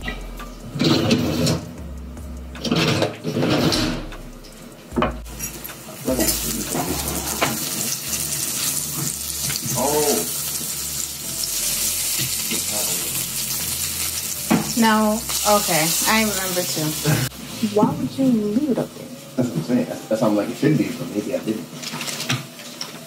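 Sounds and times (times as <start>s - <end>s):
kitchen utensils clattering: 0.0s - 1.7s, 2.6s - 4.1s, 5.0s - 8.1s
oil sizzling in a frying pan: 4.0s - 23.0s.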